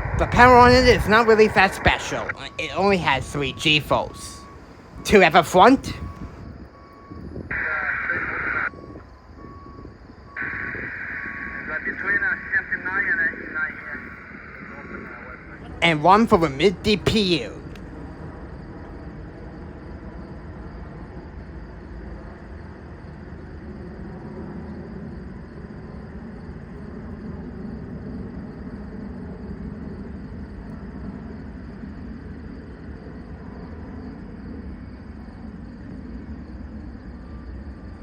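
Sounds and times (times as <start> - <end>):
distant freight train rumbling: 0.0 - 7.6.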